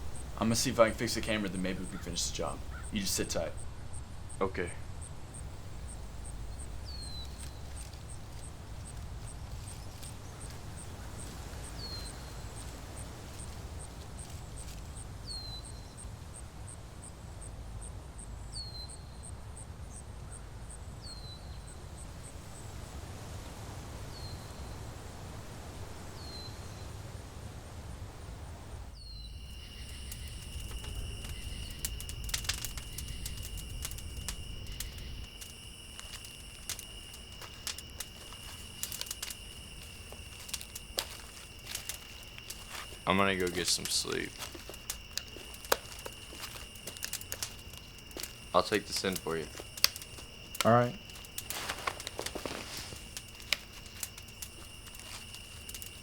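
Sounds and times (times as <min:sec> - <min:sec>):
crackles and clicks: 0:00.0 - 0:16.4, 0:28.6 - 0:56.0
insect chirping in fast pulse: 0:00.0 - 0:16.5, 0:28.8 - 0:56.0
high insect drone: 0:00.0 - 0:17.8, 0:28.4 - 0:56.0.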